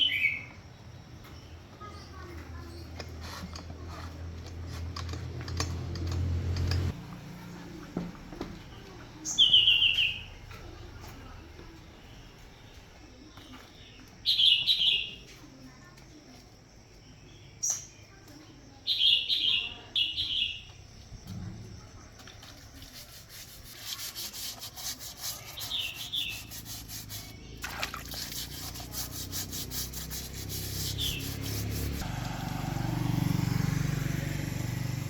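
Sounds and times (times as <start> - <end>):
small birds chirping: 0.0 - 6.1, 8.4 - 35.0
rasping strokes: 22.6 - 32.1
low motor hum: 28.3 - 35.0.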